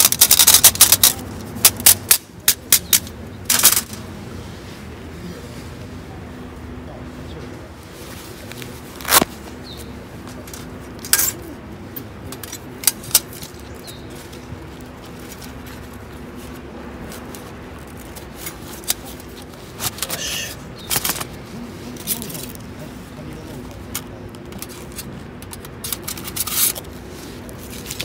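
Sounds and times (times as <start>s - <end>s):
small hard objects clicking: 0.0s - 4.0s
steady low hum: 0.0s - 28.0s.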